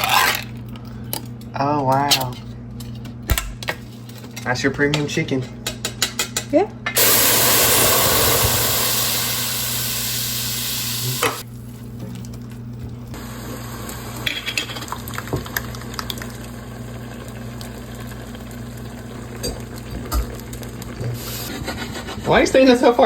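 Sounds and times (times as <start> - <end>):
chicken frying in a pan: 7.0 - 11.4, 13.1 - 21.4
grease popping: 7.0 - 11.4.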